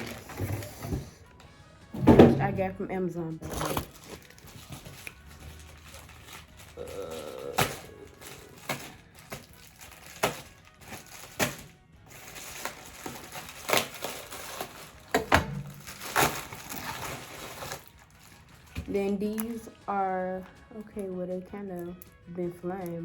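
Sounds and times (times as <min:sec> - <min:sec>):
faint background music: 0:00.0 - 0:23.0
plastic packaging clicks and knocks: 0:03.5 - 0:19.5.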